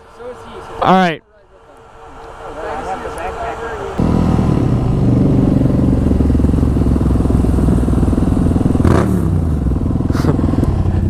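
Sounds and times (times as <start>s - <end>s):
motorcycle engine running: 4.0s - 11.0s.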